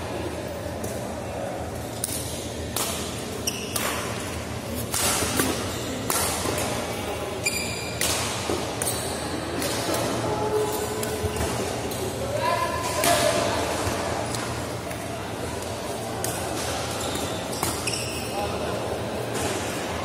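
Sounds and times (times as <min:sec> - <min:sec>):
rackets hitting shuttlecock: 0:02.0 - 0:06.9, 0:07.8 - 0:10.2.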